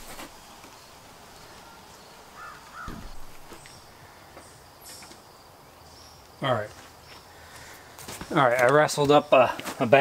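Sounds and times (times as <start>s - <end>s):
bird calling: 1.4s - 5.2s.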